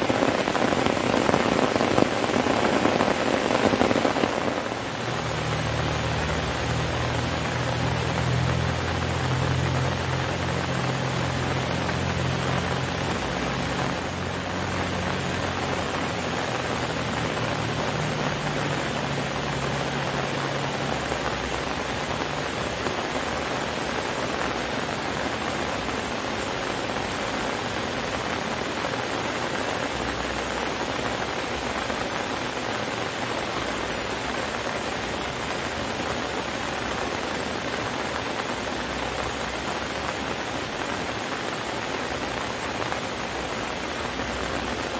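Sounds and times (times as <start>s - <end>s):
heavy rain falling: 0.0s - 44.9s.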